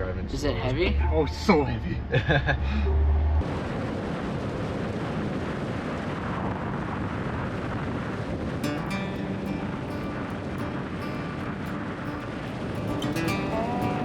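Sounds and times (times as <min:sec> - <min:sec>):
vehicle moving on road: 0:00.8 - 0:04.0
person speaking: 0:12.9 - 0:14.0.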